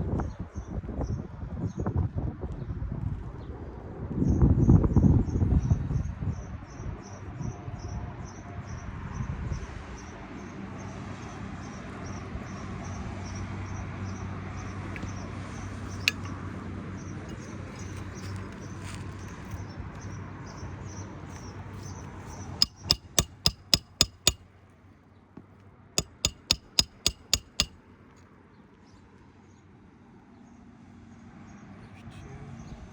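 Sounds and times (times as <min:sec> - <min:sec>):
hammer blows with ringing: 0:22.6 - 0:24.4, 0:26.0 - 0:27.7.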